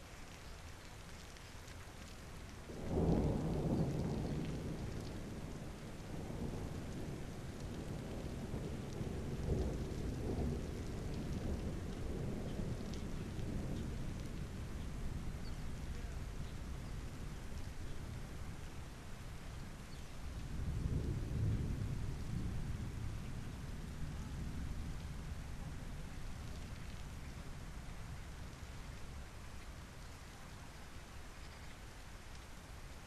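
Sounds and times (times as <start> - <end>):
rain falling: 0.0 - 33.0
thunder rumbling: 2.7 - 29.2.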